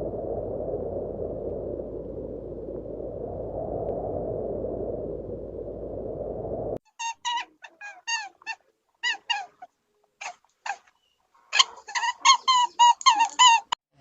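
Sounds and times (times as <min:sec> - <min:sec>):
steady low hiss: 0:00.0 - 0:06.8.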